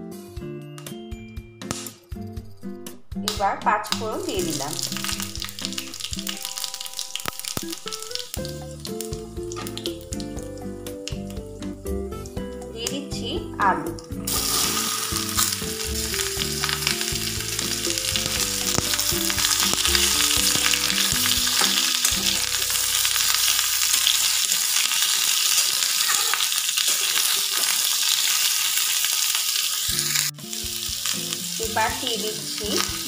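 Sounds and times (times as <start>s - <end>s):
potatoes sizzling in oil: 3.3s - 13.0s, 13.8s - 33.0s
spatula stirring: 14.1s - 27.8s.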